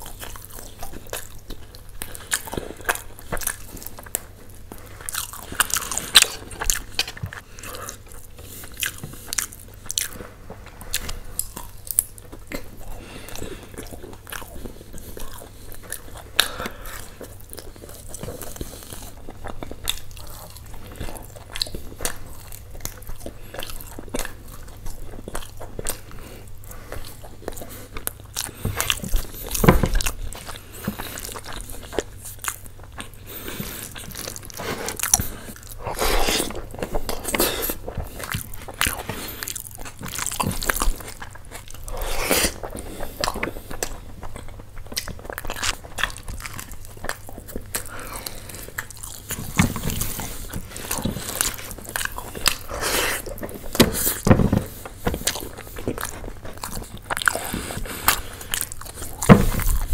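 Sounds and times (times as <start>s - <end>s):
chewing and biting food: 0.0s - 59.9s
food crunching: 0.0s - 59.9s.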